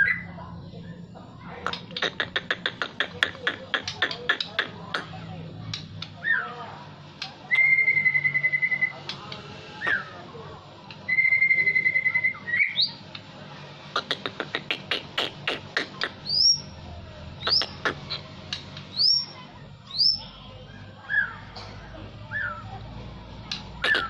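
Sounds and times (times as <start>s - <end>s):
songbird singing: 14.0s - 16.8s, 17.4s - 20.3s, 22.2s - 22.8s, 23.5s - 24.0s.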